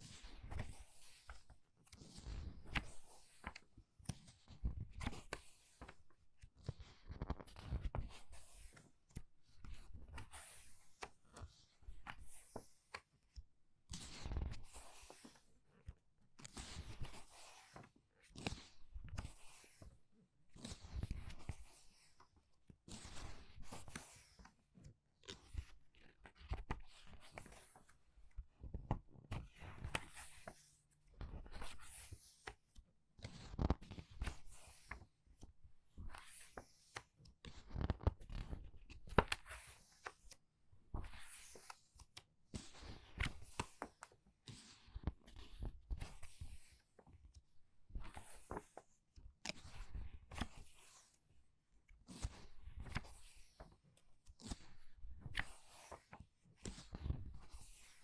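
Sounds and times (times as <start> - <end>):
book pages turning: 14.0 - 15.5, 25.3 - 27.9, 33.2 - 35.0, 36.1 - 37.0, 37.6 - 40.3, 42.8 - 46.8, 48.1 - 48.8, 49.4 - 51.1, 52.1 - 53.7, 54.3 - 56.1.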